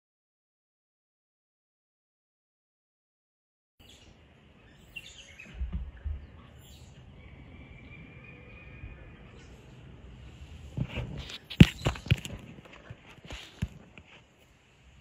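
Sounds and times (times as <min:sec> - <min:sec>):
small bird chirps: 0:03.8 - 0:09.8, 0:11.2 - 0:12.3
faint background noise: 0:03.8 - 0:15.0.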